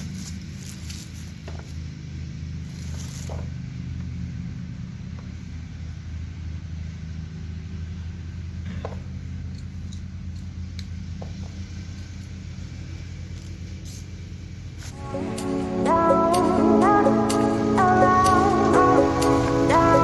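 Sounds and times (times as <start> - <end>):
small engine running: 14.5 - 20.0
music: 15.0 - 20.0.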